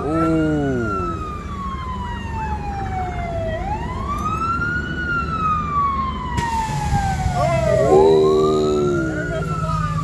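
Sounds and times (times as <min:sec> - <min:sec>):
emergency siren wailing: 0:00.0 - 0:10.0.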